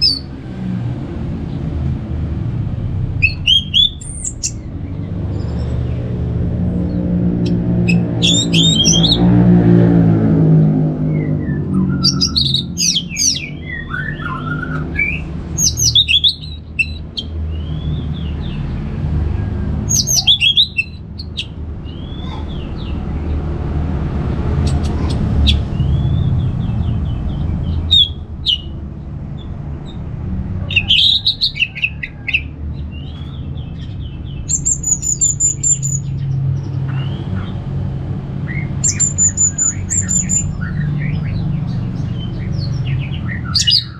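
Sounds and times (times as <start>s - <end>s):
steady low hum: 0.0s - 31.2s
thrush singing: 3.1s - 6.0s, 6.7s - 18.9s, 19.7s - 29.1s.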